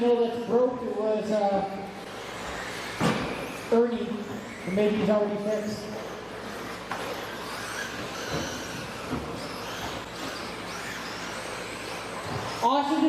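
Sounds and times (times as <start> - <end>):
electric motor whines: 0.0 - 13.0
steady low hum: 0.0 - 13.0.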